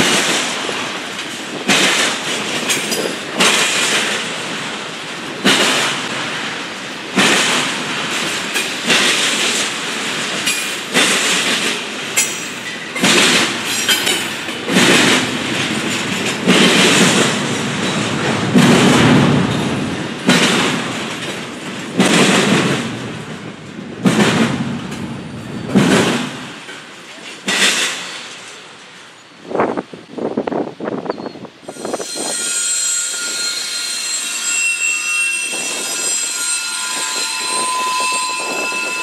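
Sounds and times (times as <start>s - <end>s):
train wheels clacking: 0.0s - 28.7s, 31.7s - 39.0s
train rumble: 0.0s - 39.0s
high wheel squeal: 31.2s - 39.0s.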